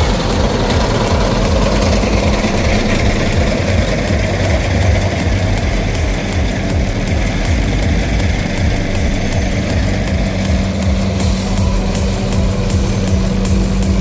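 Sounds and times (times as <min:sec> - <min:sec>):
heavy machinery engine throbbing: 0:00.0 - 0:14.0.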